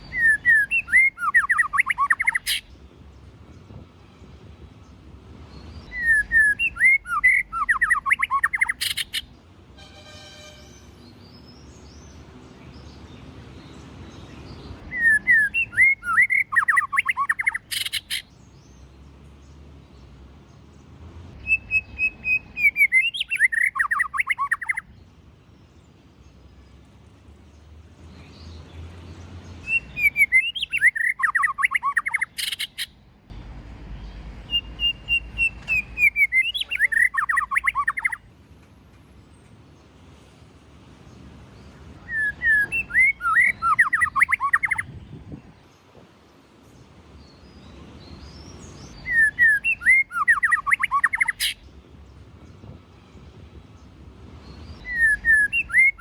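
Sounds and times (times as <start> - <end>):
songbird chirping and whistling: 0.0 - 2.7, 5.7 - 9.4, 14.8 - 18.3, 21.4 - 24.9, 29.6 - 33.0, 34.4 - 38.2, 42.0 - 45.0, 48.2 - 51.6, 54.5 - 56.0.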